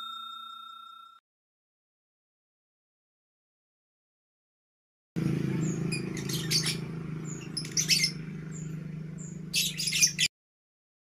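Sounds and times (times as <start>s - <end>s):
songbird chirping rapidly: 5.2s - 10.3s.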